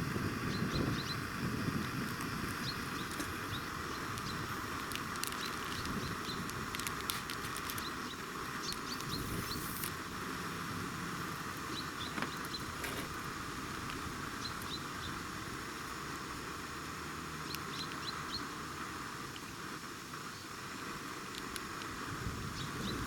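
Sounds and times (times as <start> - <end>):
steady outdoor hiss: 0.0 - 23.0
small bird chirps: 0.5 - 1.3, 7.7 - 9.9, 11.6 - 12.8, 14.4 - 15.2, 17.4 - 18.5.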